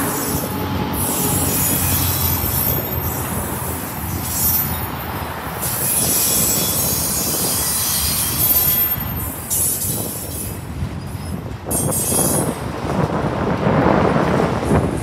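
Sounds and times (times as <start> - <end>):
high wheel squeal: 0.0 - 12.6
freight cars rumbling on rails: 0.0 - 15.0.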